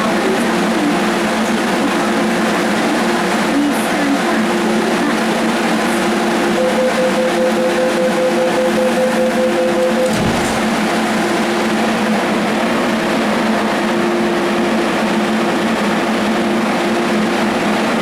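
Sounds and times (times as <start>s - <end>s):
electric train humming: 0.0s - 18.0s
rapid pulsing beep: 6.0s - 10.2s.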